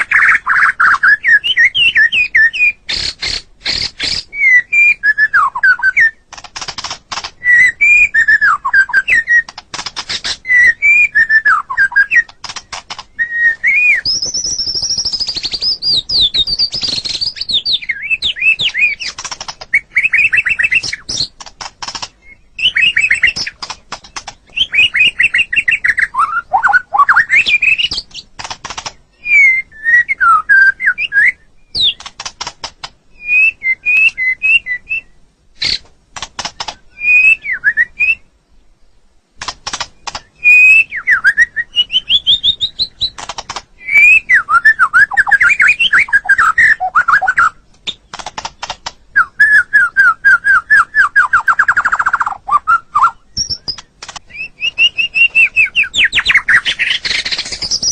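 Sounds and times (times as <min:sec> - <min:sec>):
bird singing whistled phrases: 0:00.0 - 0:06.2, 0:07.4 - 0:09.5, 0:10.2 - 0:12.3, 0:13.1 - 0:19.1, 0:19.7 - 0:21.3, 0:22.2 - 0:23.6, 0:24.5 - 0:28.2, 0:29.1 - 0:32.0, 0:33.2 - 0:35.8, 0:36.9 - 0:38.3, 0:40.2 - 0:43.2, 0:43.8 - 0:47.6, 0:49.1 - 0:57.9
high bird trill: 0:00.0 - 0:32.2, 0:39.7 - 0:57.9
bird chattering notes: 0:50.8 - 0:57.9.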